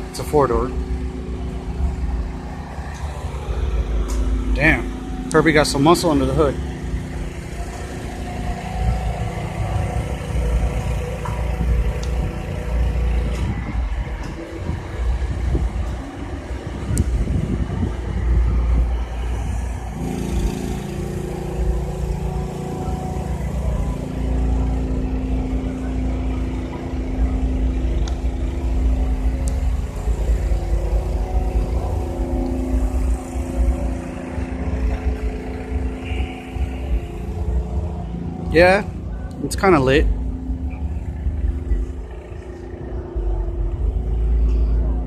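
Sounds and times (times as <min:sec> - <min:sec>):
car engine idling: 0:00.0 - 0:45.0
wind buffeting microphone: 0:11.3 - 0:20.0.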